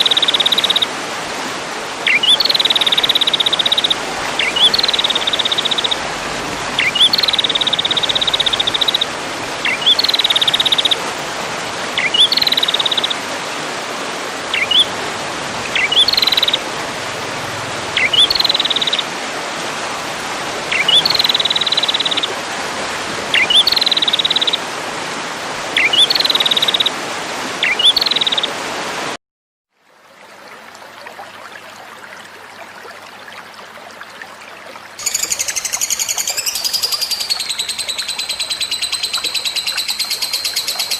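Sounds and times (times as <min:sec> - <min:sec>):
louder bird song: 0:02.0 - 0:06.0, 0:06.8 - 0:11.0, 0:12.0 - 0:13.2, 0:14.5 - 0:14.9, 0:15.7 - 0:16.6, 0:18.0 - 0:19.0, 0:20.7 - 0:22.3, 0:23.3 - 0:24.6, 0:25.8 - 0:26.9, 0:27.6 - 0:28.5, 0:35.0 - 0:40.9
bird chirp and buzzy trill: 0:35.0 - 0:40.9.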